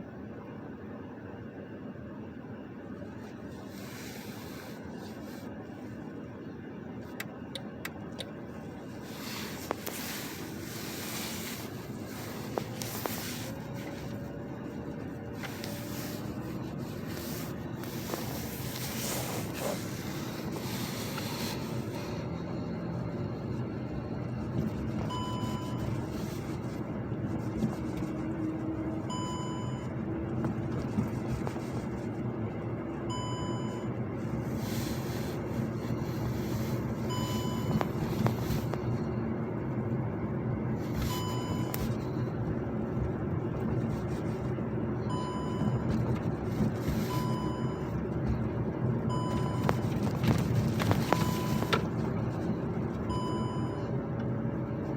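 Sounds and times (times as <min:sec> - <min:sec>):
car road and engine noise: 0:00.0 - 0:54.9.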